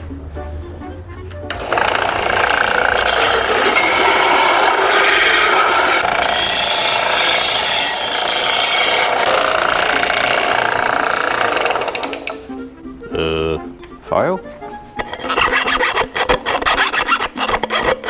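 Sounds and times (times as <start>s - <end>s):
belt sander grinding metal: 1.5s - 12.6s, 15.0s - 18.0s.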